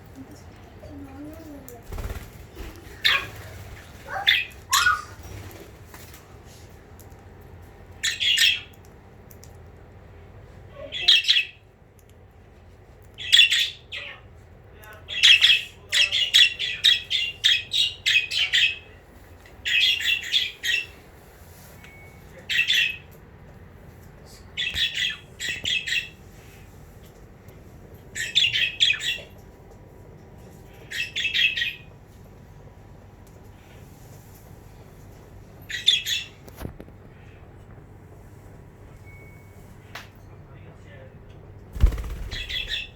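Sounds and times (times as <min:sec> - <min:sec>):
budgerigars chattering: 0:41.8 - 0:42.9.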